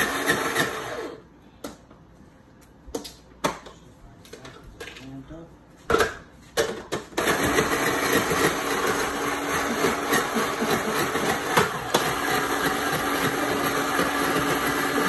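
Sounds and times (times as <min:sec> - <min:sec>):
blender churning ice: 0:00.0 - 0:01.2, 0:07.2 - 0:15.0.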